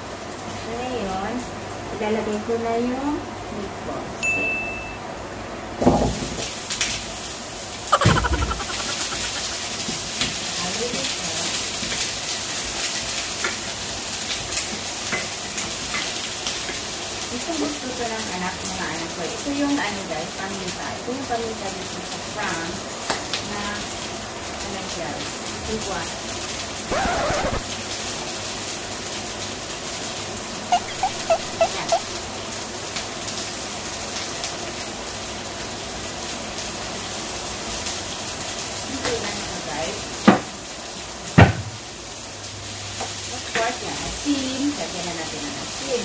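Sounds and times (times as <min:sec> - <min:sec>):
short high chirps: 0:30.7 - 0:32.2.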